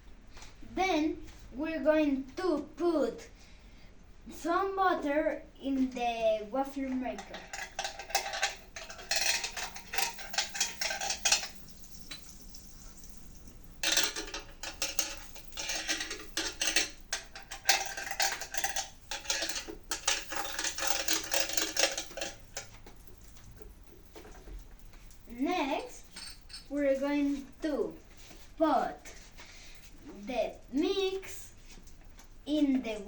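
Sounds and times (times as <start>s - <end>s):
knife scraping metal plates: 7.1s - 12.4s, 13.8s - 22.7s.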